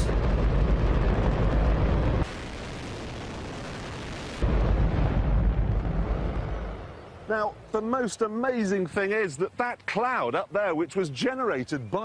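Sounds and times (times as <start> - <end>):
rocket engine roaring: 0.0 - 7.2.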